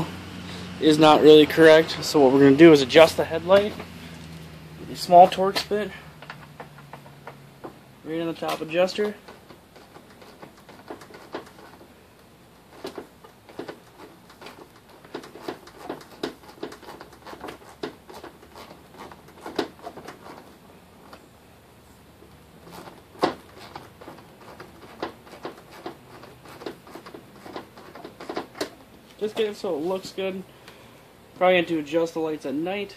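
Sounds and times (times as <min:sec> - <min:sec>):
plastic housing shifting: 0:08.4 - 0:11.9, 0:12.7 - 0:21.3, 0:22.6 - 0:29.6.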